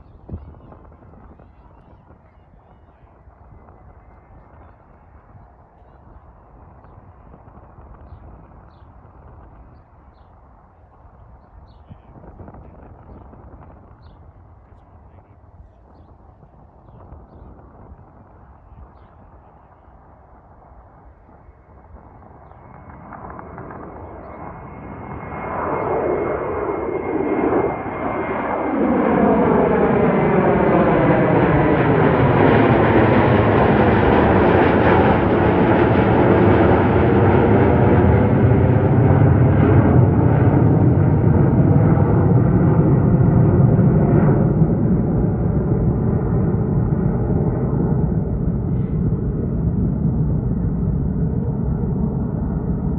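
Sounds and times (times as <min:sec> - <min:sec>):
jet engines roaring: 0:17.1 - 0:52.9.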